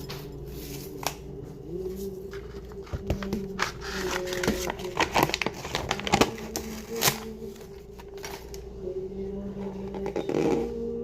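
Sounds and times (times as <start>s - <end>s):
steady low hum: 0.0s - 11.0s
crinkling: 1.9s - 8.7s.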